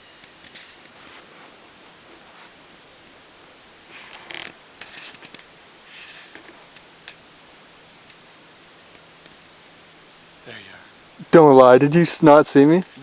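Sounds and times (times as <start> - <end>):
steady low hiss: 0.0 - 13.0
soft rustles and clicks: 0.2 - 2.6, 3.9 - 7.3.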